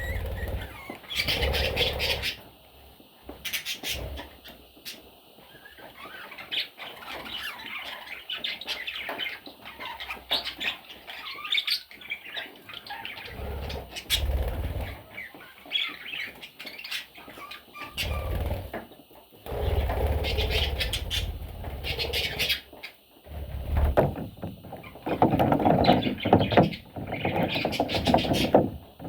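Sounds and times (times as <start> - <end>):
wing flapping: 0.0 - 2.4, 18.0 - 18.8, 19.5 - 22.6
budgerigars chirping and chattering: 0.0 - 2.5, 3.4 - 18.8, 19.5 - 23.0, 25.8 - 28.6.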